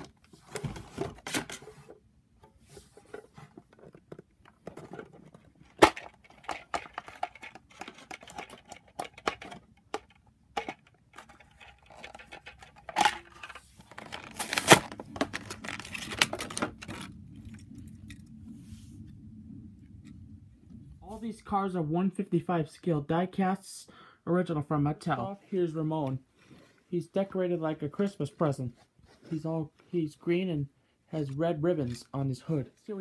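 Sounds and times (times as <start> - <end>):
plastic and cardboard tearing: 10.6 - 17.1.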